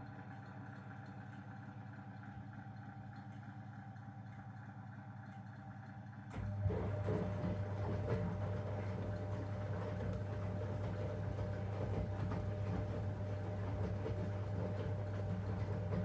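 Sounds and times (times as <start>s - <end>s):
washing machine humming: 6.3s - 16.0s.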